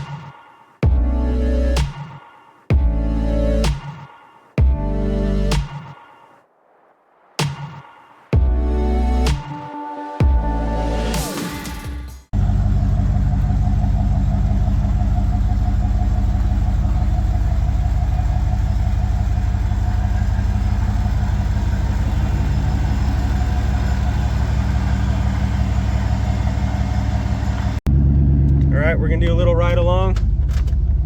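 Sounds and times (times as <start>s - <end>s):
pickup truck engine idling: 12.4s - 27.8s.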